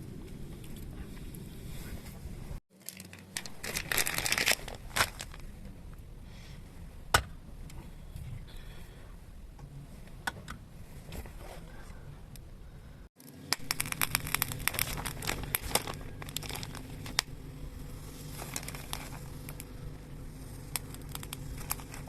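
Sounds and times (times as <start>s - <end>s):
rustling and scraping handling noise: 0.2s - 5.8s, 10.8s - 12.0s, 13.2s - 17.4s, 18.0s - 22.0s.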